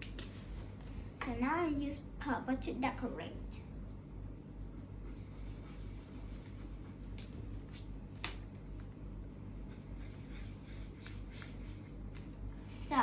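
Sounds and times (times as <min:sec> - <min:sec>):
scratching of coloring on paper: 0:04.7 - 0:07.9, 0:09.6 - 0:12.8.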